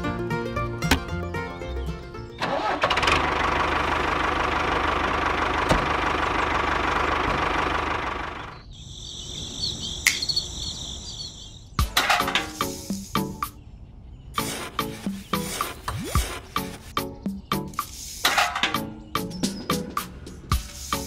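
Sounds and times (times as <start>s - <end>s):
model tractor running: 2.4s - 8.6s
crickets chirping: 8.6s - 11.7s.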